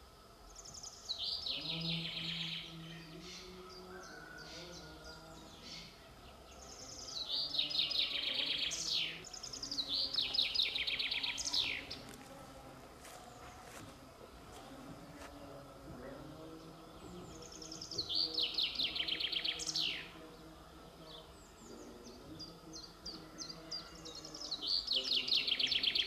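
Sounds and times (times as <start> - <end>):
songbird trilling: 6.6 - 12.0, 17.3 - 20.1, 23.4 - 26.0.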